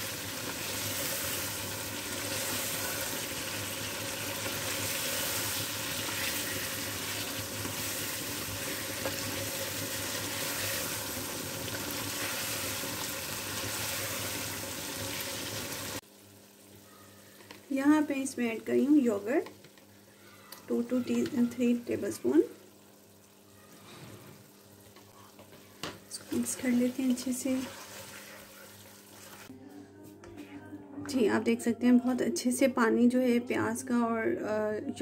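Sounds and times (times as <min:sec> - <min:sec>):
chicken sizzling in a pan: 0:00.0 - 0:19.3, 0:24.4 - 0:29.5
metal spatula stirring: 0:04.2 - 0:11.2.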